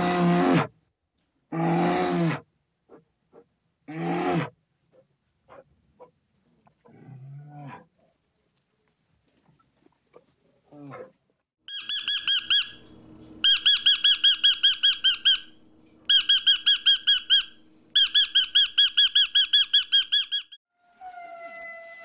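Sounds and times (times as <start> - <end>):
parrot calling high squeaky notes: 11.7 - 12.8, 13.4 - 15.5.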